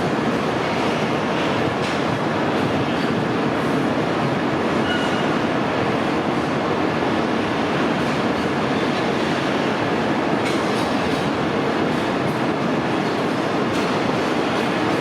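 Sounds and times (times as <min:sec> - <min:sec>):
freight train wheels on rails: 0:00.0 - 0:15.0.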